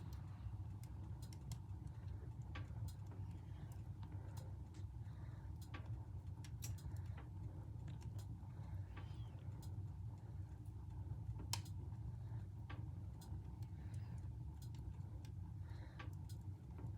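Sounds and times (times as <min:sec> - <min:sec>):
fireplace fire crackling: 0:00.0 - 0:16.9
steady low hum: 0:00.0 - 0:16.9.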